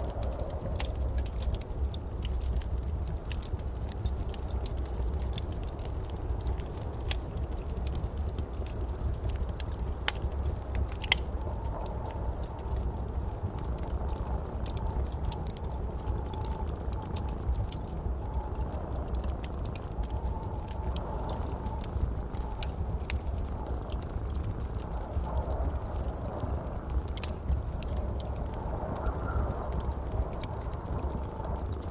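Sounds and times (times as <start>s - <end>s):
wood fire crackling: 0.0s - 31.9s.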